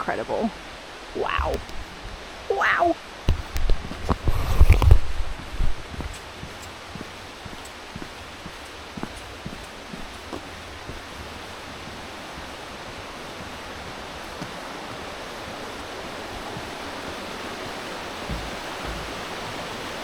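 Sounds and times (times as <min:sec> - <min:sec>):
waterfall rushing: 0:00.5 - 0:20.0
low thuds: 0:09.0 - 0:20.0.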